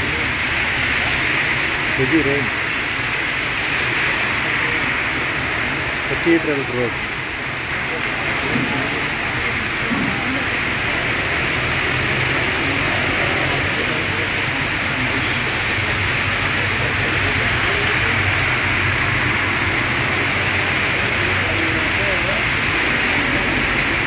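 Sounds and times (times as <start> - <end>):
heavy rain on street: 0.0 - 24.0.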